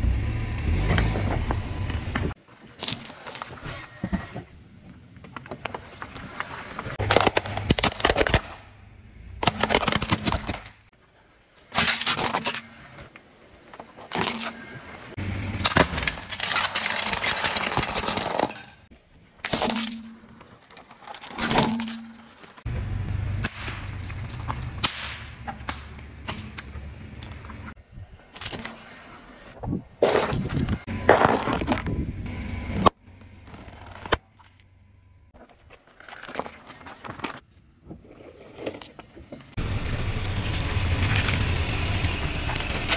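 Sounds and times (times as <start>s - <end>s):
car tyres crushing brittle objects: 6.9s - 10.9s, 13.9s - 18.9s, 23.2s - 27.4s, 31.0s - 32.0s, 32.8s - 34.7s, 39.6s - 42.9s.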